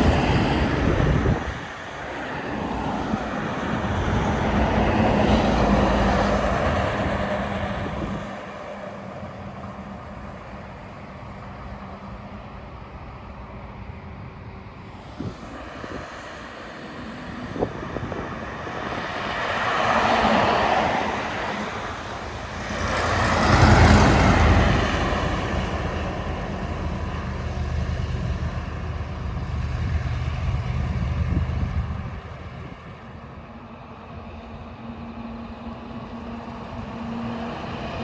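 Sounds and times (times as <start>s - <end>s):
heavy truck engine drone: 0.0s - 38.0s
vehicle passing: 14.9s - 32.0s.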